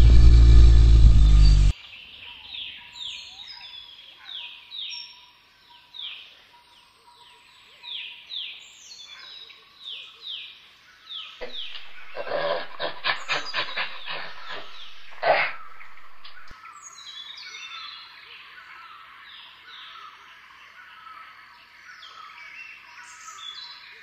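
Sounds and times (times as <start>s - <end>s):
bird calling downward slides: 0.0s - 1.7s, 11.4s - 16.5s.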